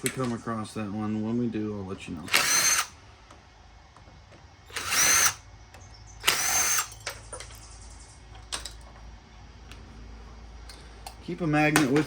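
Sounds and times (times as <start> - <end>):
power drill bursts: 2.3 - 2.9, 4.7 - 5.4, 6.2 - 7.0.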